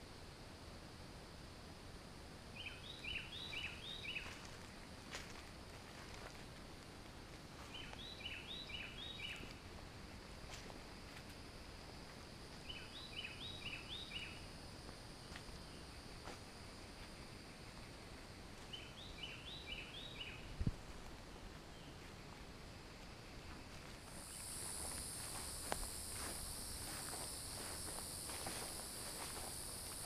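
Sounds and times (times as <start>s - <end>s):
faint high hiss: 0.0s - 30.0s
songbird singing: 2.5s - 4.6s, 7.6s - 9.6s, 12.6s - 14.5s, 18.6s - 30.0s.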